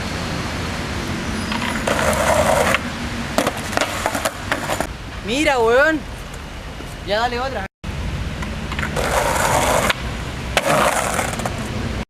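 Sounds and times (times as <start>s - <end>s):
street noise: 0.0s - 12.0s
skateboard wheels rolling: 1.4s - 4.9s, 8.4s - 12.0s
skateboard clacking: 1.5s - 2.8s, 3.4s - 4.9s, 8.7s - 10.0s, 10.6s - 11.8s.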